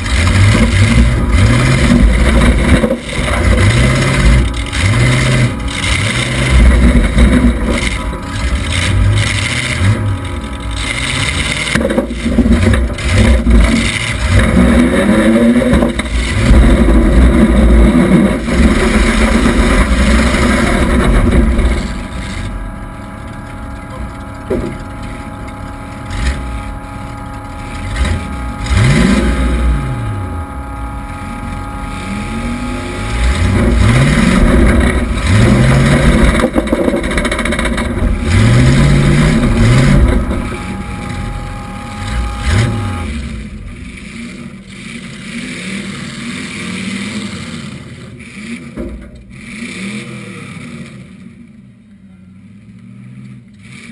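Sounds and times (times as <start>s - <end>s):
car engine revving: 0.0s - 53.9s.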